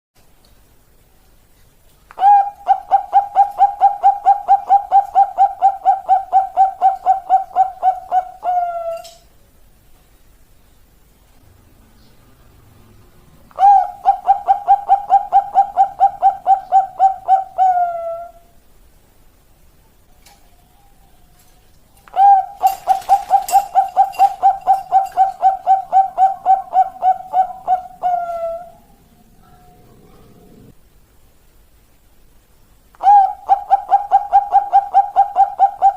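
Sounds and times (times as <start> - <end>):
dove cooing: 2.2 - 9.3, 13.5 - 18.5, 20.1 - 30.8, 33.0 - 35.9.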